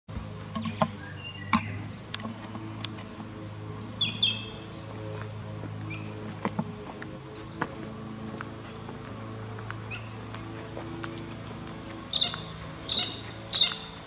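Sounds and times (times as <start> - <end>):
steady low hum: 0.1 - 14.0
high bird chirps: 12.1 - 14.0.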